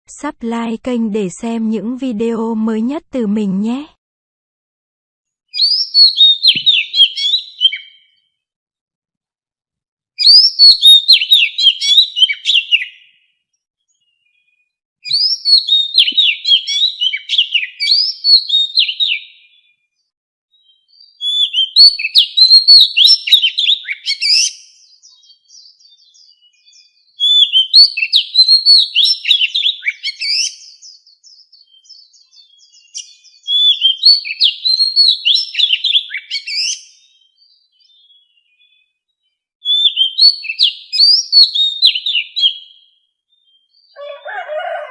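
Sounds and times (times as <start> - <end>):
bird singing whistled phrases: 5.5 - 8.2, 10.2 - 13.2, 14.4 - 19.7, 20.6 - 39.0, 39.6 - 44.4
soft bird twittering: 5.5 - 8.4, 10.2 - 44.9.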